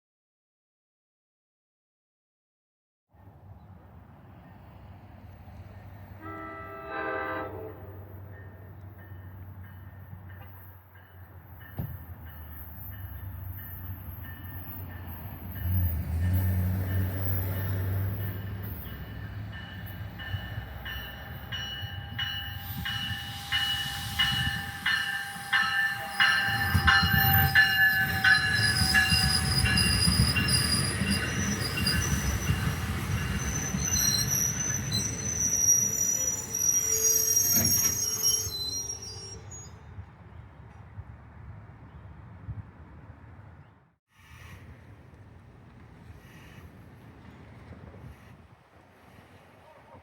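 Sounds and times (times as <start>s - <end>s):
train rumbling past: 3.2s - 50.0s
wheels squealing on rail: 6.2s - 40.0s, 46.0s - 48.5s.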